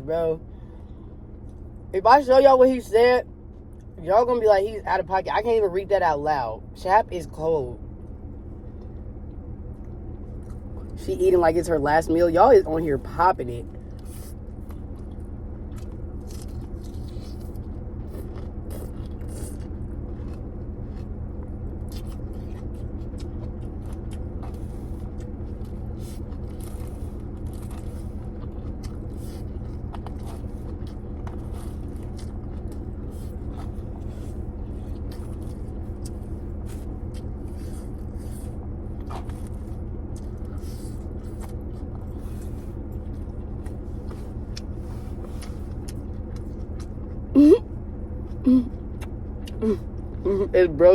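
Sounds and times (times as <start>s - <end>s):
steady low hum: 0.0s - 50.9s
chewing: 8.6s - 11.1s, 13.6s - 50.2s.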